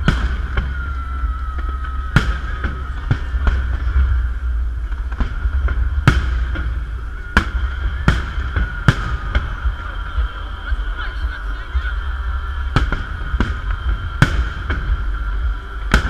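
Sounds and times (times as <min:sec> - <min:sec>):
fireworks bangs: 0:00.0 - 0:16.0
low rumble: 0:00.0 - 0:16.0
steady high tone: 0:00.0 - 0:16.0.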